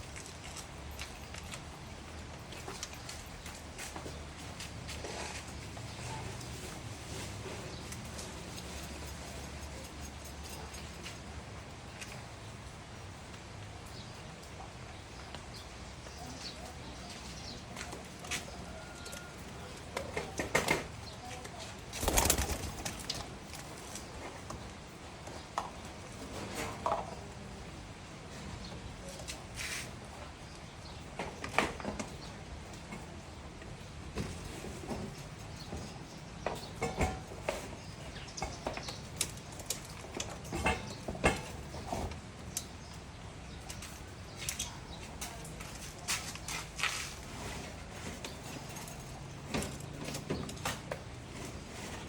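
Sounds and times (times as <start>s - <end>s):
pecking and scuffling clicks: 0.0s - 4.0s
beaks pecking grain: 16.1s - 24.6s.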